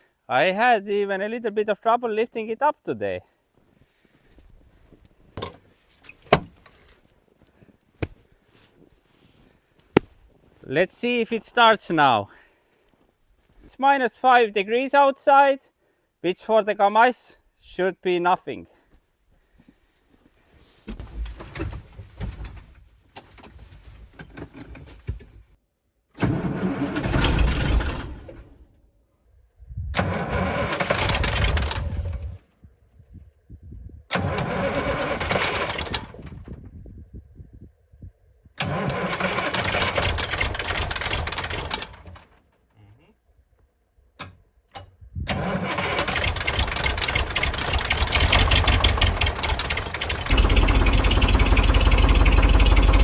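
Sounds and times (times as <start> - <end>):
diesel engine cranking and sputtering: 26.2 - 28.8, 30.0 - 32.6, 34.1 - 36.7, 38.6 - 42.9, 45.2 - 53.0.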